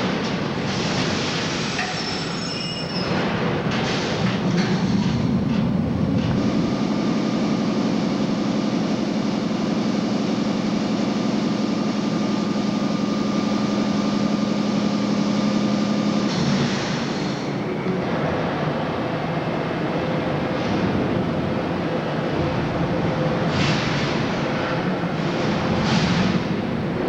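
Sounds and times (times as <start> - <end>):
subway train running through station: 0.0 - 27.0.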